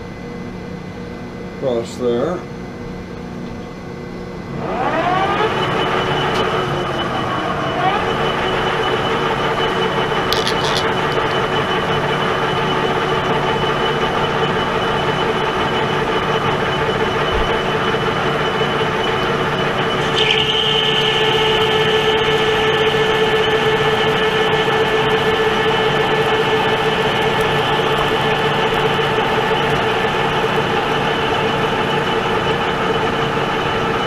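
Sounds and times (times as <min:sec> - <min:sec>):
lathe cutting steel bar: 0:18.0 - 0:34.0.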